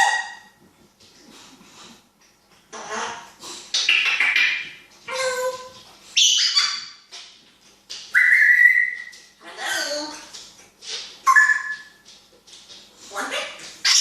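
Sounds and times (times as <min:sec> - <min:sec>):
parrot squawking: 0:00.0 - 0:00.5, 0:02.7 - 0:03.3, 0:04.0 - 0:07.0, 0:08.1 - 0:10.2, 0:11.2 - 0:12.0, 0:13.1 - 0:14.0
parrot whistling: 0:08.1 - 0:09.2, 0:11.2 - 0:12.0.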